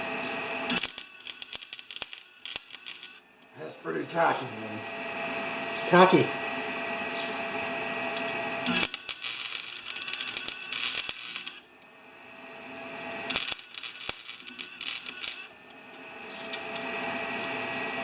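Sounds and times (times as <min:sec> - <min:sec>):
steady hum: 0:00.0 - 0:18.0
welder arc crackling: 0:00.0 - 0:18.0.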